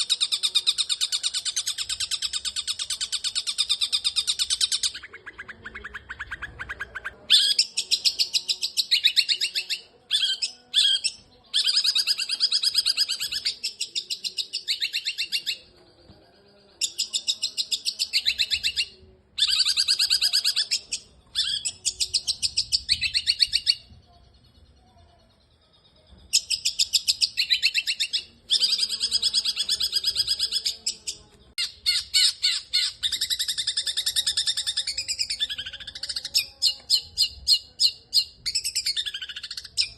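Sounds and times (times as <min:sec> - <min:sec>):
shrike singing rattling chirps: 0:16.7 - 0:39.9.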